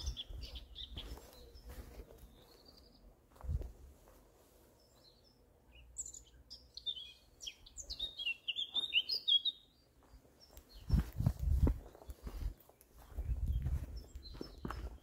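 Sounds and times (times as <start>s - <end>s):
songbird chirping: 0.0s - 15.0s
low footstep thuds: 10.8s - 15.0s.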